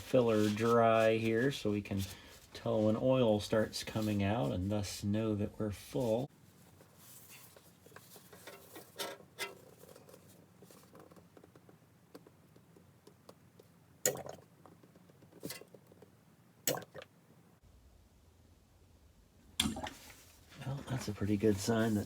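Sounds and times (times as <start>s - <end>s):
handling clicks and knocks: 7.9s - 13.8s, 14.4s - 16.2s.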